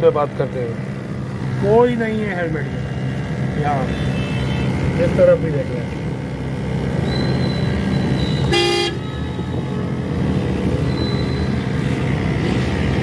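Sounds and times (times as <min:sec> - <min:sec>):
road traffic: 0:00.0 - 0:13.0
vehicle horn honk: 0:03.8 - 0:04.8, 0:08.4 - 0:09.3.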